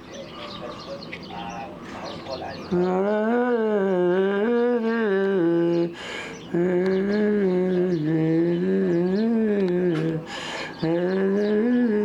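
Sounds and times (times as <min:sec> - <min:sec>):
person humming a slow tune: 0:02.7 - 0:12.0.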